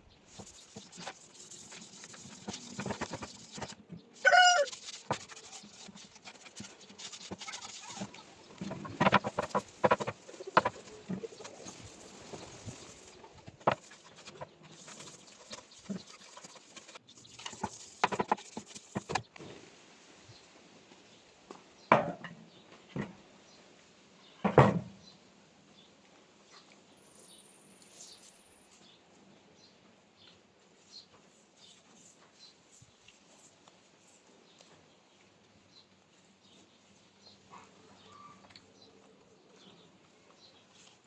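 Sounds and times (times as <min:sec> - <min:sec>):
knocks taps and scraping: 0:00.3 - 0:19.5
animal call: 0:04.2 - 0:05.6.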